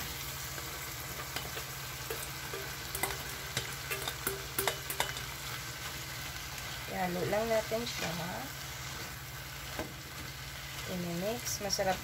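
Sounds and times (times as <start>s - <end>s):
bacon sizzling in a frying pan: 0.0s - 12.0s
spatula and pot clicking on pan: 1.1s - 5.9s.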